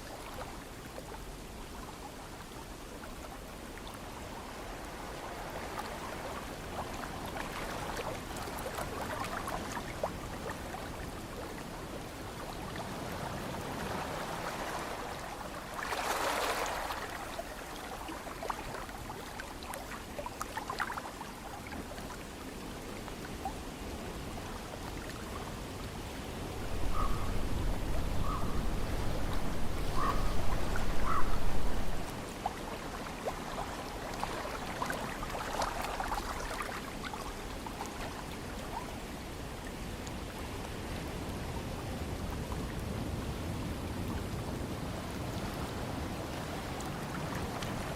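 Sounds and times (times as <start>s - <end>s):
ocean water washing: 0.0s - 47.9s
wind buffeting microphone: 26.4s - 32.2s.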